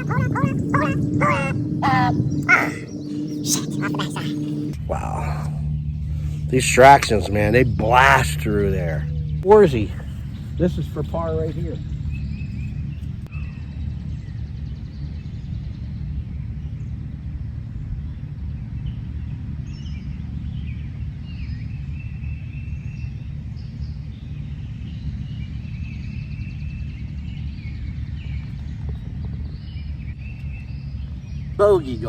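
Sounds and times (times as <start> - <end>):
birds chirping: 0.0 - 13.2, 26.0 - 32.0
steady low rumble: 0.0 - 18.8.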